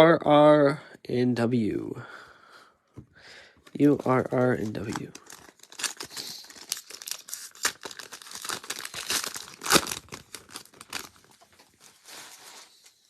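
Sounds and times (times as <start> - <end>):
card pack wrappers crinkling: 3.7 - 12.9.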